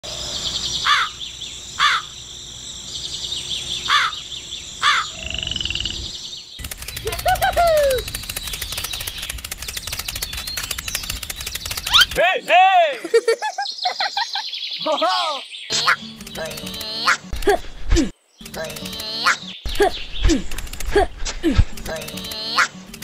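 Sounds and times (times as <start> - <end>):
birds chirping: 0.2 - 23.0
low falling bird call: 4.8 - 12.2
dense rapid ticking: 6.6 - 12.2, 20.5 - 21.0, 21.6 - 23.0.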